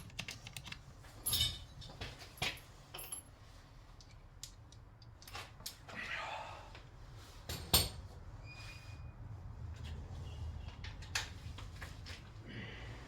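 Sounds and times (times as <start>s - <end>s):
metal hardware clinking: 1.2s - 3.3s.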